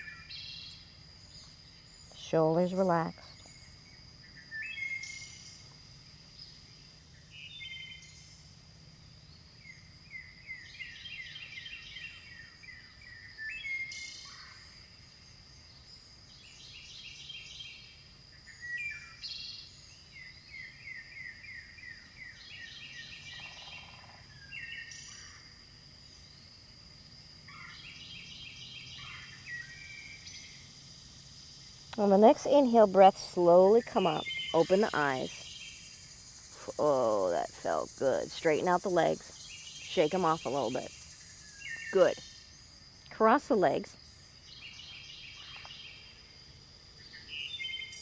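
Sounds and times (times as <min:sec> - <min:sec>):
songbirds chirping and trilling: 0:00.0 - 0:26.6, 0:27.3 - 0:48.0
high-pitched insect whine: 0:00.0 - 0:48.0.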